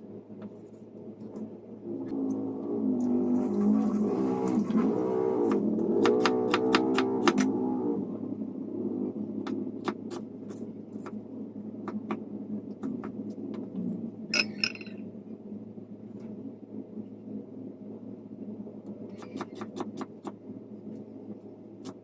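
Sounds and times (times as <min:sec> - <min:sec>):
low hum: 0:07.8 - 0:19.2
dishes clattering: 0:14.4 - 0:15.0
kitchen clicks and clinks: 0:14.4 - 0:15.0.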